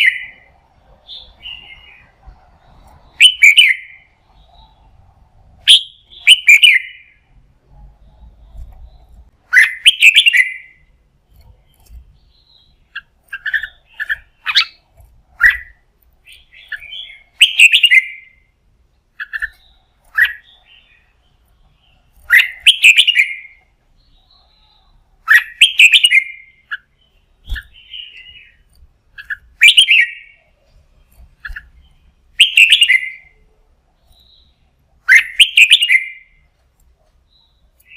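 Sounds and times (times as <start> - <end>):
bulbul singing: 0.0 - 37.9
soft bird chirps: 0.0 - 37.9.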